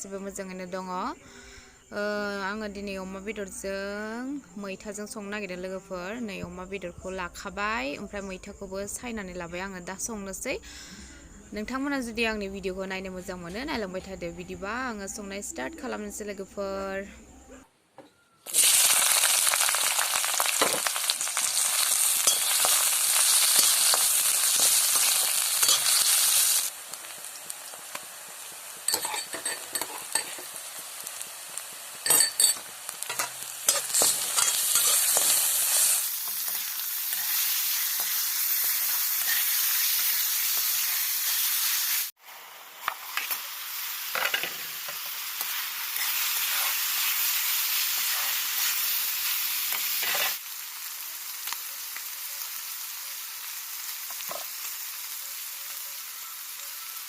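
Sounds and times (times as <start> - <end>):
food sizzling in hot oil: 18.5 - 57.0
spoon clinking against pan: 22.2 - 22.8, 28.9 - 30.4, 32.0 - 35.4.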